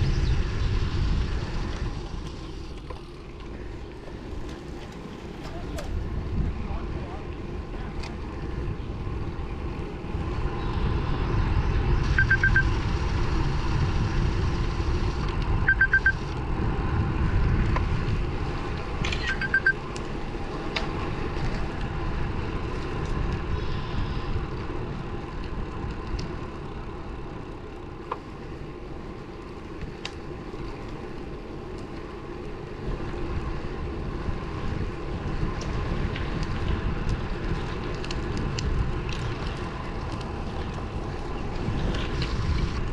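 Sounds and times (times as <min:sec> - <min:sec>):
road and tyre noise: 0:00.0 - 0:42.9
wind rushing over microphone: 0:00.0 - 0:42.9
high electronic beeps: 0:12.1 - 0:12.7, 0:15.7 - 0:16.2, 0:19.2 - 0:19.8.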